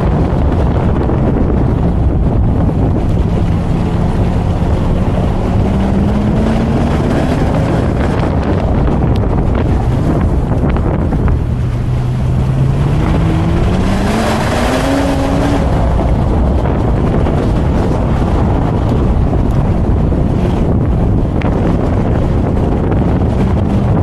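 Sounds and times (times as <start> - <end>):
car engine accelerating: 0.0 - 24.0
wind noise on microphone: 0.0 - 24.0.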